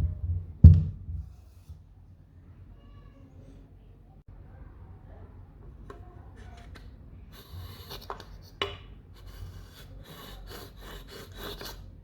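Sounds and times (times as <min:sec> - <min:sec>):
scraping strokes on wood: 0:07.4 - 0:11.9.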